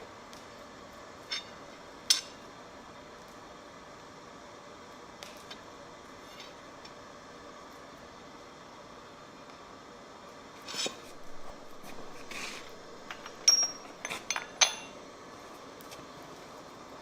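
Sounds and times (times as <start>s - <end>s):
steady low hum: 0.0s - 15.7s
metal clinking on metal: 10.8s - 15.0s.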